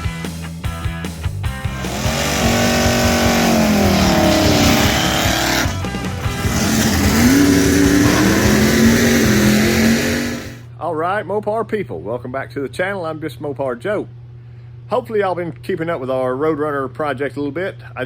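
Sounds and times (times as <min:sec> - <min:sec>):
rock music: 0:00.0 - 0:10.6
car engine running hard: 0:01.7 - 0:10.6.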